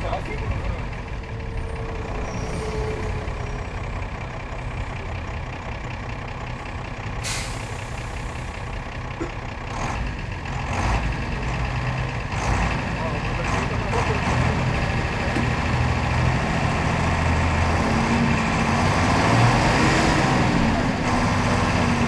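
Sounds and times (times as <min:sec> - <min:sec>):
bus diesel engine running: 0:00.0 - 0:22.0
air brake hiss: 0:07.2 - 0:08.5.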